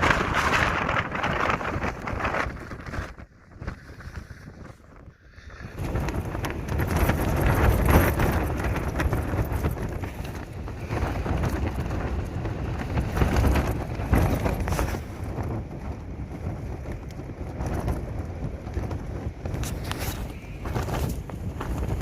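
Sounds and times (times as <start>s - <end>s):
tent fabric flapping and rattling: 0.0s - 5.0s, 5.7s - 22.0s
storm wind gusting: 0.0s - 22.0s
wind rumble on microphone: 0.0s - 22.0s.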